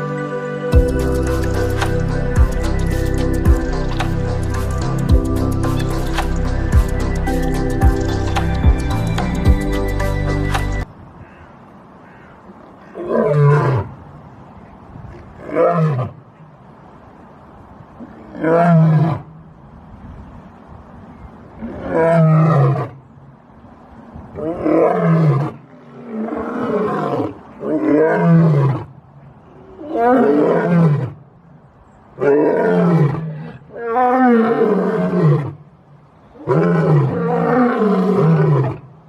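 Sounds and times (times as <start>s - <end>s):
lion roaring: 24.4s - 28.9s, 29.7s - 31.2s, 32.2s - 35.6s, 36.4s - 38.9s.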